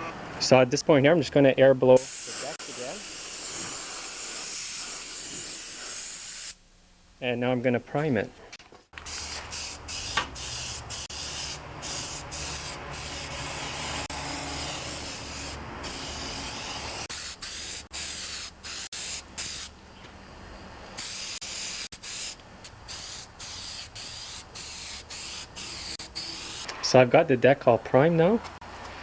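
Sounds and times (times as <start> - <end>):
spray paint hissing: 2.0 - 6.6, 9.0 - 19.7, 21.0 - 26.7.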